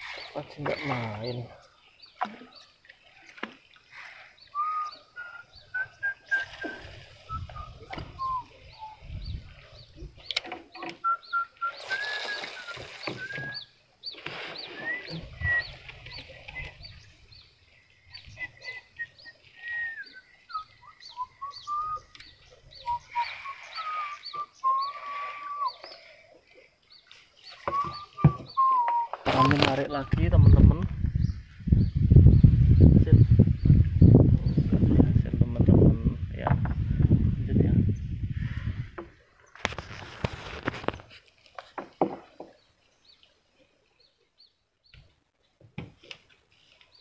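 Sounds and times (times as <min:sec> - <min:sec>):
birds whistling: 0:00.0 - 0:34.6
high bird chirp: 0:04.4 - 0:26.1, 0:27.0 - 0:34.6.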